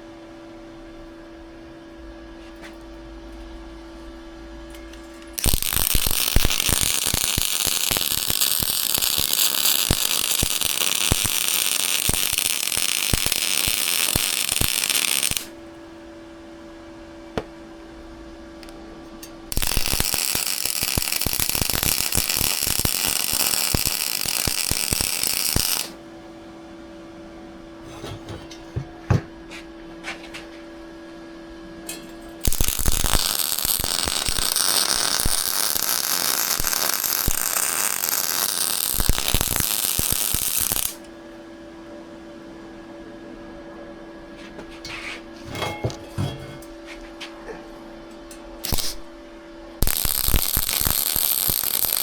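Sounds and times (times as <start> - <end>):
steady hum: 0.0 - 52.0
welding arc crackling: 5.3 - 15.6, 19.5 - 26.0, 32.4 - 41.1, 48.6 - 49.2, 49.8 - 52.0.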